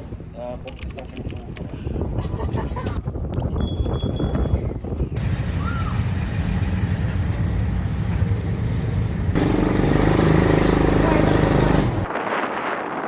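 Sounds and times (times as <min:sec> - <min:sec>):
wind rumble on microphone: 0:00.0 - 0:06.3, 0:11.1 - 0:13.0
vehicle engine running: 0:05.2 - 0:12.1.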